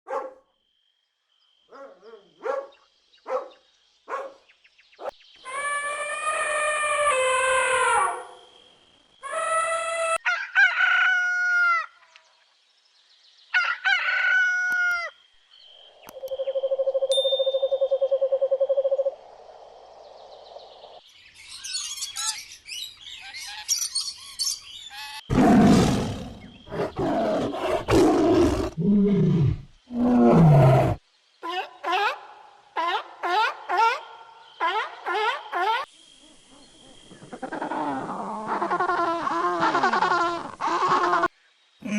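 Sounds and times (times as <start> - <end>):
birds chirping: 1.7 - 6.4, 15.6 - 31.9
long falling animal call: 5.4 - 8.3, 9.2 - 12.0, 37.1 - 41.9
rough animal roar: 25.3 - 31.0.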